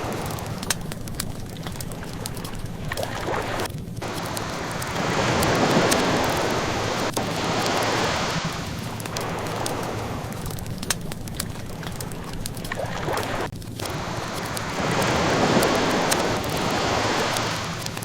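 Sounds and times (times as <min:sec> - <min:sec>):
ocean wave washing in: 0:00.0 - 0:00.6, 0:03.0 - 0:10.6, 0:12.8 - 0:18.0
wood fire crackling: 0:00.0 - 0:18.0.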